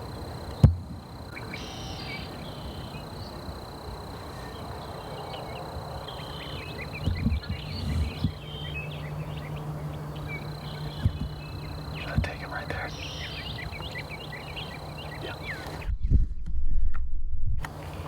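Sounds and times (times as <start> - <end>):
songbirds chirping: 0.0 - 15.9
low steady hum: 0.0 - 16.0
dull low thumps: 11.0 - 12.4.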